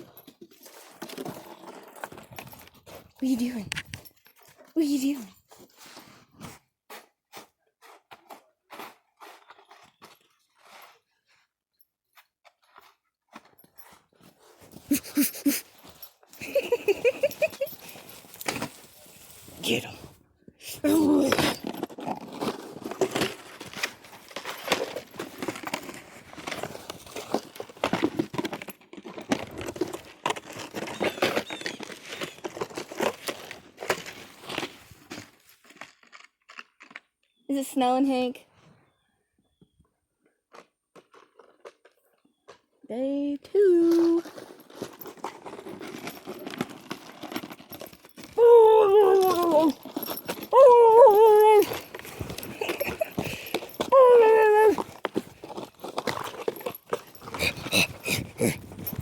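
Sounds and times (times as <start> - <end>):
dog whining: 48.4 - 55.0, 57.2 - 59.0.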